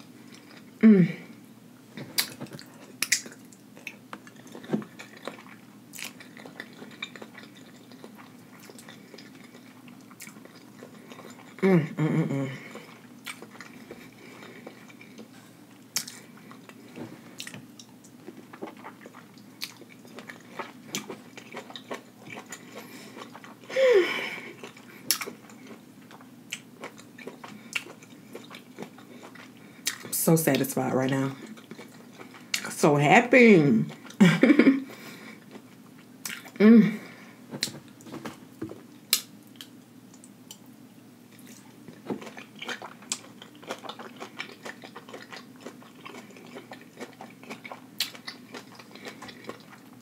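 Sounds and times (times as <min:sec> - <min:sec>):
person humming: 0:00.8 - 0:01.4, 0:11.6 - 0:12.7, 0:36.6 - 0:37.1
lip smacks: 0:02.0 - 0:05.4
chewing with wet mouth clicks: 0:02.2 - 0:11.6, 0:12.7 - 0:15.3, 0:15.9 - 0:23.7, 0:24.6 - 0:30.6, 0:31.4 - 0:32.7, 0:35.5 - 0:36.6, 0:39.1 - 0:40.7, 0:41.3 - 0:50.0.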